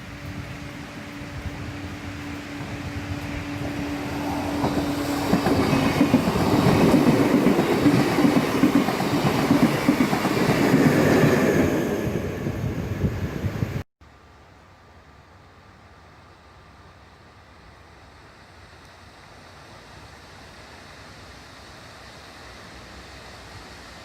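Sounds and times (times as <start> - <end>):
train wheels clattering over rails: 3.6 - 12.2.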